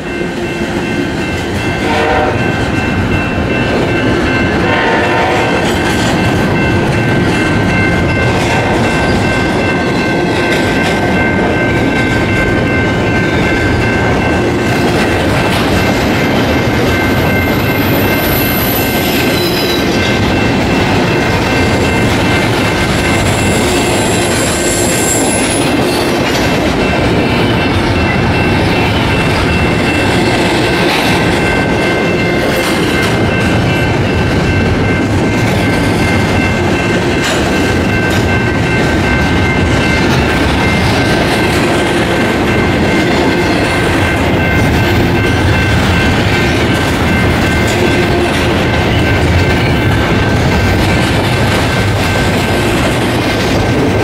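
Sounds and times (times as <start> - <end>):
diesel locomotives passing: 0.0 - 54.0
train cars rumbling and clattering: 0.0 - 54.0.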